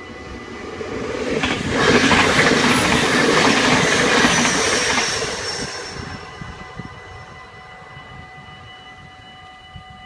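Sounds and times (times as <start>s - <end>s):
diesel train passing: 0.0s - 10.0s
crossing bells ringing: 2.5s - 9.7s.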